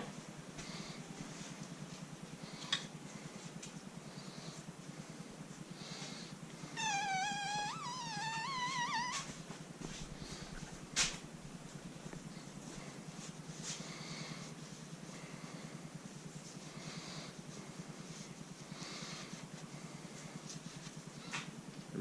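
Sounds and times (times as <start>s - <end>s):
steady low hum: 0.0s - 22.0s
wavering animal call: 6.8s - 9.3s.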